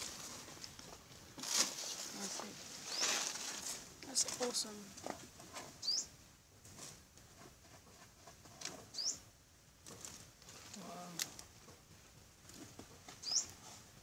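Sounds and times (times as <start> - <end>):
small bird chirp: 2.8 - 3.2, 5.8 - 6.1, 8.9 - 9.2, 13.2 - 13.6.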